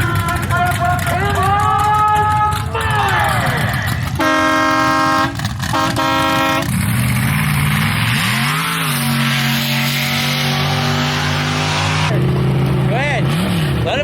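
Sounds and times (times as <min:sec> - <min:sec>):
vehicle engine revving: 0:00.0 - 0:14.0
horn blasts: 0:04.2 - 0:06.8.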